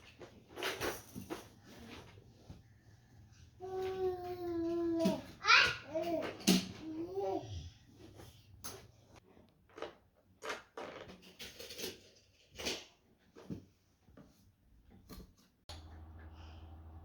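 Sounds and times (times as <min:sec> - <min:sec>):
child's vocal sound: 0:03.6 - 0:07.8.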